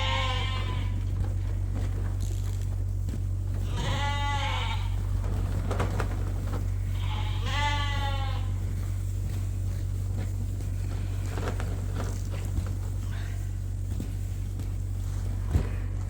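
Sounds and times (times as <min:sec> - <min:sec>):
sheep bleating: 0:00.0 - 0:01.2, 0:03.5 - 0:05.1, 0:06.8 - 0:09.0
steady low rumble: 0:00.0 - 0:16.0.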